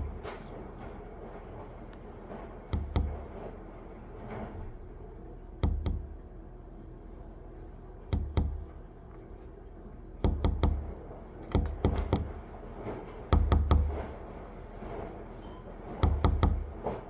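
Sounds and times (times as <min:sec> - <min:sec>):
low steady hum: 0:00.0 - 0:17.0
sharp knocks with dull thuds: 0:08.1 - 0:08.7, 0:10.2 - 0:10.9, 0:11.5 - 0:12.4, 0:13.3 - 0:14.1, 0:16.0 - 0:17.0.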